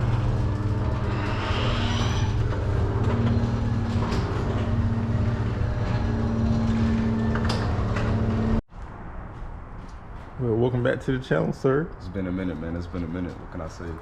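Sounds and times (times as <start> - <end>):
car engine pulsing drone: 0.0 - 8.6.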